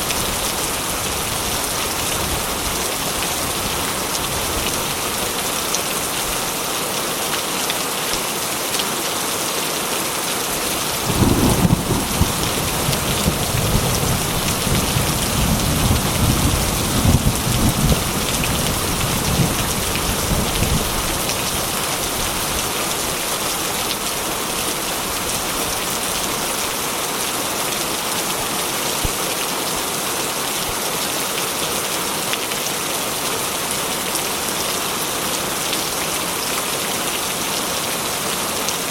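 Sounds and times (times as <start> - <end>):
rain drumming on metal roof: 10.2 - 29.8
thunder rumbling: 10.9 - 21.0.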